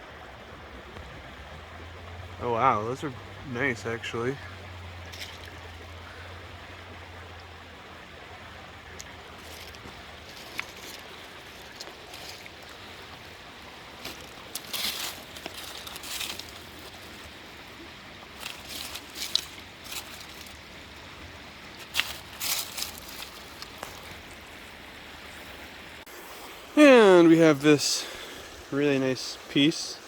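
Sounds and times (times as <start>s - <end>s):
steady stream-like rush: 0.0s - 30.0s
crunching and scraping: 5.1s - 5.8s, 8.9s - 24.4s.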